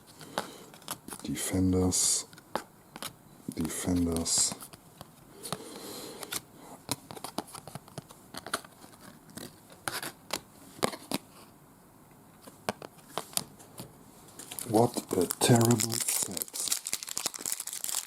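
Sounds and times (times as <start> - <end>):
cards rustling: 0.1 - 11.3, 14.3 - 18.0.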